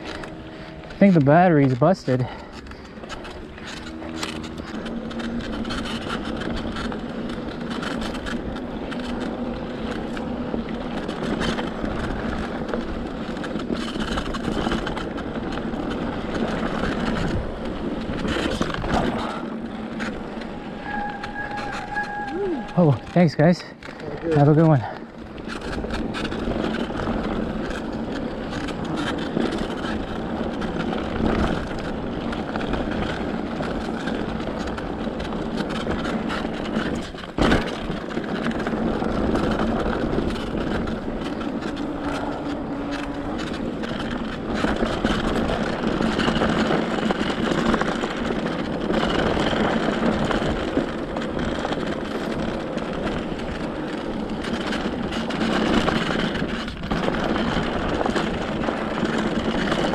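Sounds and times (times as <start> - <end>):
bike tyres and wind noise: 0.0 - 59.9.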